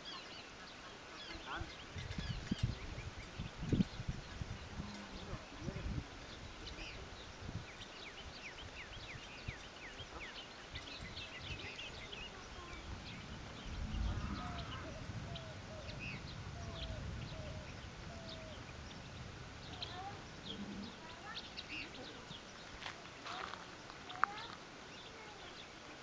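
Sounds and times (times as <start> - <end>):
slurred bird calls: 0.0 - 25.8
birds chirping: 0.0 - 26.0
low rumble: 12.8 - 21.0.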